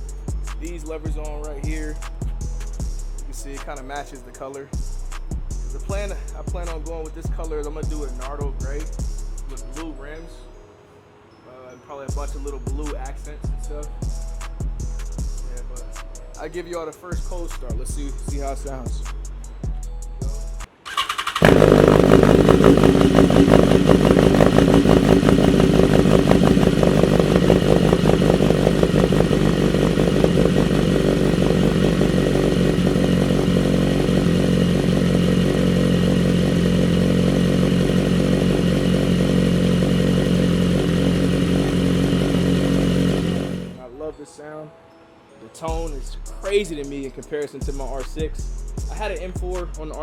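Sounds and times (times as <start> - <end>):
motorcycle engine starting and idling: 20.9 - 43.8.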